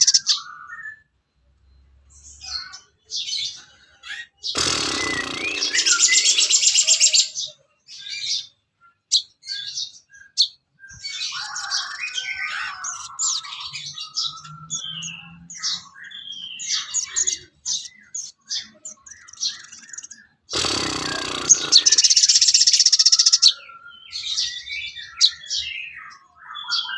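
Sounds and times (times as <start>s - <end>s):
songbird singing: 0.0s - 26.9s.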